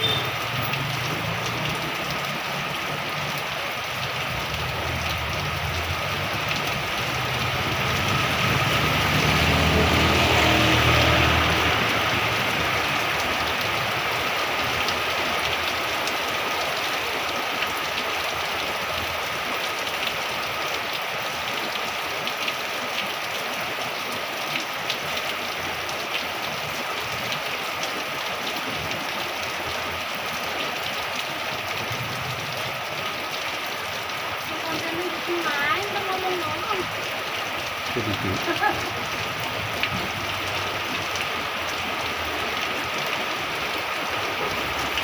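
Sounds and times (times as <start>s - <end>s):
sharp raindrop taps: 0.0s - 10.0s
heavy rain hissing: 0.0s - 19.6s, 25.0s - 45.0s.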